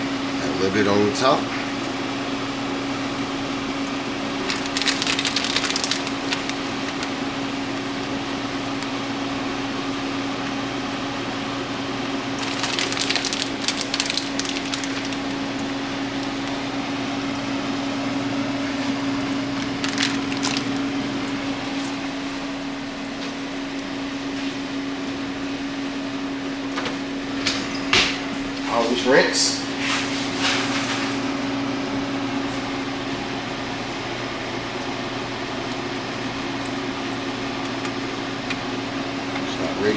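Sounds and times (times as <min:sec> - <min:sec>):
steady hum: 0:00.0 - 0:39.9
crackling: 0:04.4 - 0:07.4, 0:12.3 - 0:16.7, 0:19.2 - 0:22.1.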